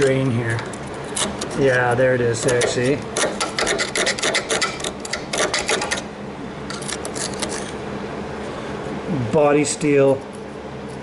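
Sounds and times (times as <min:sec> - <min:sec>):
rapid scratchy clicking and scraping: 0:00.0 - 0:06.0
steady low hum: 0:00.0 - 0:11.0.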